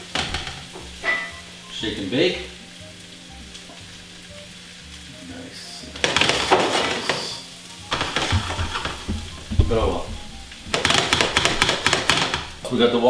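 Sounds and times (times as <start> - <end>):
garlic sizzling in hot oil: 0.0 - 13.0
utensil clicking against pan: 6.0 - 7.3, 7.9 - 9.4, 10.7 - 12.7.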